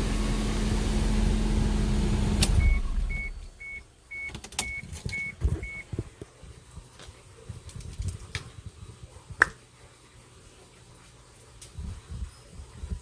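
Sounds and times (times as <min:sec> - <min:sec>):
car engine humming: 0:00.0 - 0:03.6.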